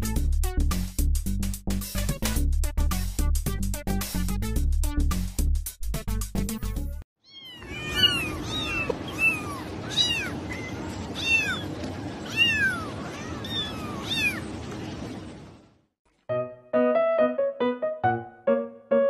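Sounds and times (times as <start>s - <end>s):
cat meowing: 7.2s - 14.4s
piano music: 16.2s - 19.0s.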